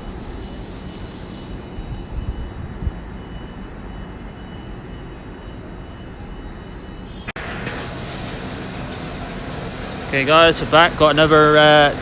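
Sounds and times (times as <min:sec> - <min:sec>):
hissy station noise: 0:00.0 - 0:01.7
faint high whine: 0:00.0 - 0:07.4
train rumbling: 0:06.9 - 0:12.0.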